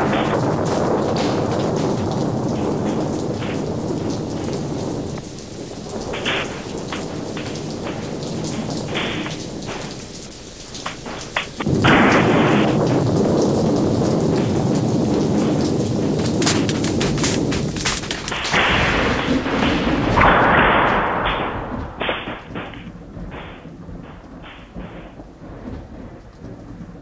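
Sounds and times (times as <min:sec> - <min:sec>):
loud thunder burst: 0:00.0 - 0:27.0
steady rain: 0:00.0 - 0:27.0
thunder rumbling: 0:00.0 - 0:27.0
sharp knocks: 0:06.0 - 0:12.9, 0:15.4 - 0:25.9.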